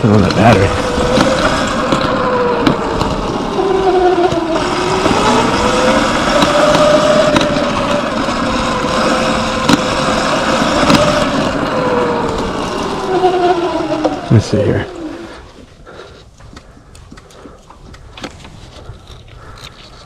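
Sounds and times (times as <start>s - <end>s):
electric motor whining: 0.0s - 15.7s
tyre noise: 0.0s - 20.0s
wind noise: 0.0s - 20.0s
sharp knocks over bumps: 0.2s - 3.4s, 4.2s - 11.5s.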